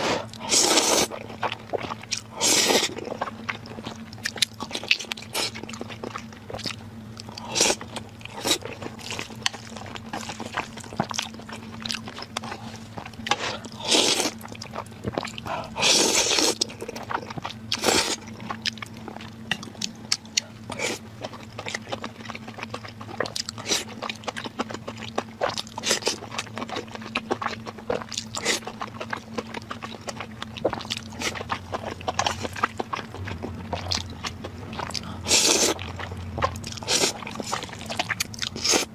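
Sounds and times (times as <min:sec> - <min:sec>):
person chewing: 0:00.0 - 0:38.9
steady low hum: 0:00.0 - 0:38.9.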